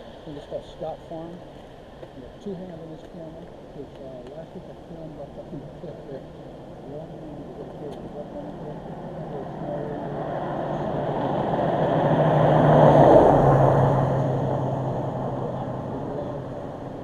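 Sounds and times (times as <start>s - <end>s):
car driving past: 6.2s - 17.0s.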